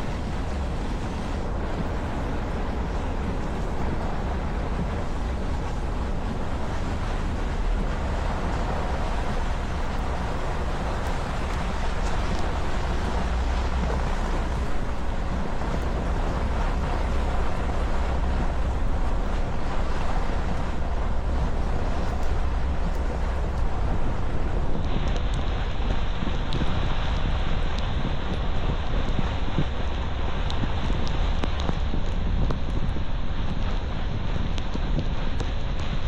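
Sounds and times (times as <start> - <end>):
vehicle driving slowly: 0.0 - 36.0.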